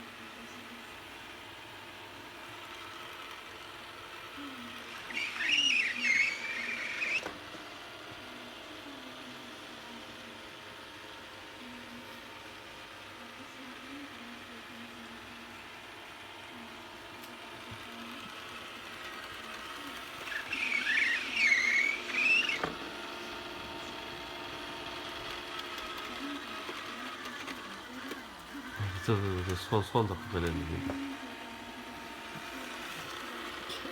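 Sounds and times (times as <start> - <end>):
robot vacuum cleaner whirring: 0.0 - 33.9
pet whining: 4.4 - 7.5, 19.0 - 33.9
small pet squeaking: 4.9 - 7.3, 20.3 - 22.7.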